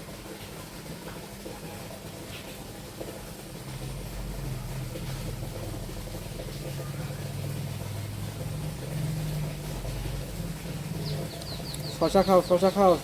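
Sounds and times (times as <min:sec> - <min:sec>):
low engine hum: 0:03.1 - 0:13.0.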